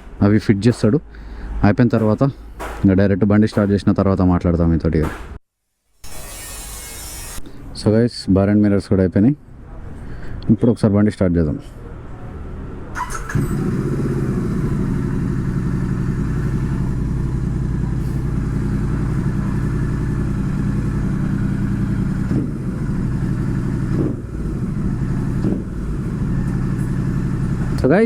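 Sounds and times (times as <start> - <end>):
motorcycle engine starting and idling: 12.9 - 28.0.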